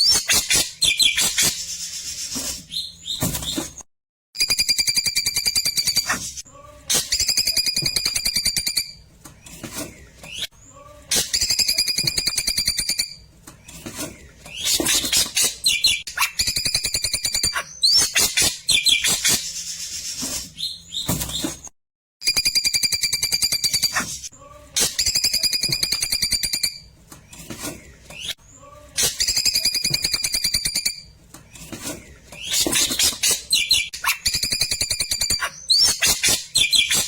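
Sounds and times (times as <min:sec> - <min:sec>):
bird singing rattling trills: 0:32.3 - 0:37.0.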